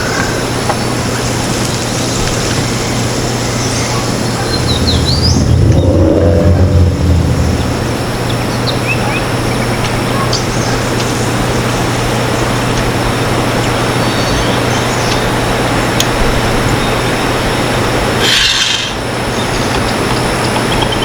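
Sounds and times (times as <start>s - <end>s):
low hum: 3.4s - 9.2s
steady rushing noise: 4.0s - 9.0s
high bird chirps: 4.4s - 8.6s.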